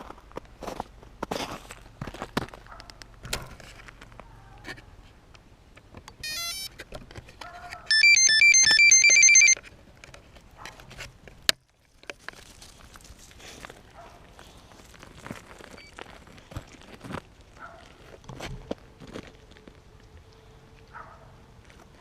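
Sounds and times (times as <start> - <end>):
electronic beeping tune: 6.3 - 6.7, 7.9 - 9.6.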